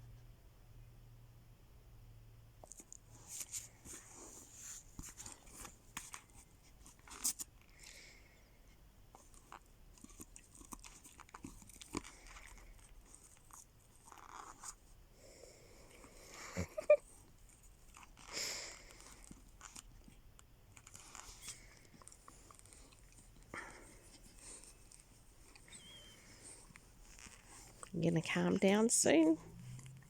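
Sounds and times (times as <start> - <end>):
puppy chewing: 9.1 - 14.8, 15.9 - 28.6, 29.2 - 30.0.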